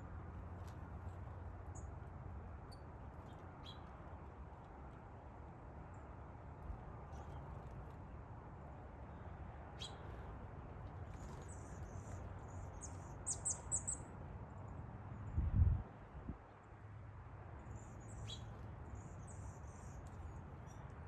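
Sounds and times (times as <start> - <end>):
birds chirping: 11.1 - 14.1.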